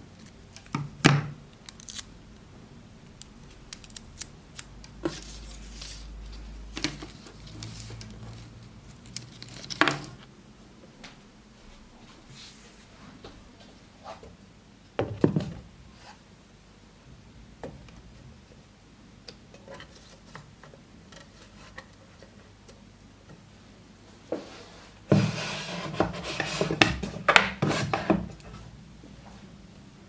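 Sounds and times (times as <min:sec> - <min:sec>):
rubbing and scraping: 0:24.4 - 0:28.6.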